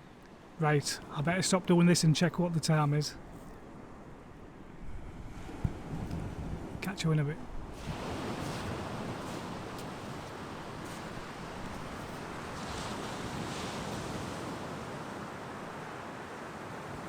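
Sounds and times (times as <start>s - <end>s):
wind on microphone: 4.7s - 14.6s
sea waves washing on beach: 4.7s - 17.0s.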